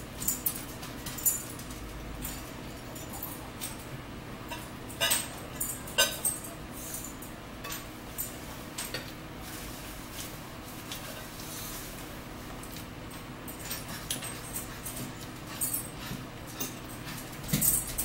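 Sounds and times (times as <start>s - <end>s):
cutlery clinks: 4.5s - 9.1s.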